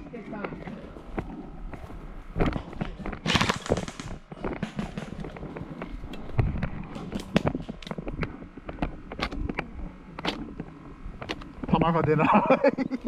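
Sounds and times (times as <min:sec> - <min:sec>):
airsoft guns firing pops: 0:02.4 - 0:10.4.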